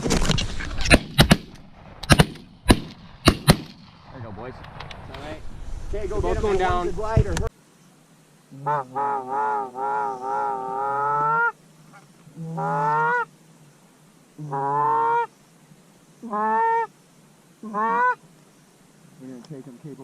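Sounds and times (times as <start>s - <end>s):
goose honking: 8.6s - 12.0s, 12.6s - 13.3s, 14.4s - 15.3s, 16.2s - 16.9s, 17.6s - 18.2s.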